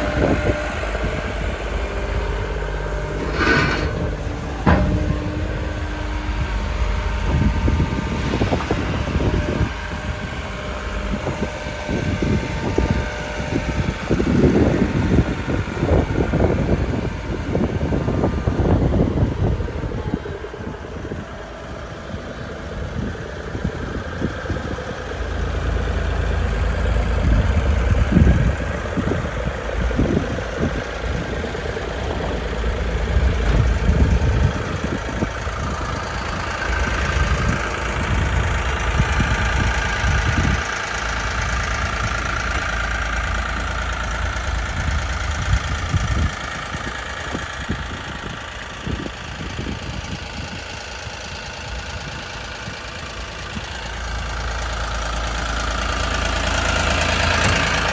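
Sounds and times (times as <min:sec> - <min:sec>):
excavator diesel engine running: 0:00.0 - 0:57.9
knocks and clatter: 0:03.0 - 0:07.0.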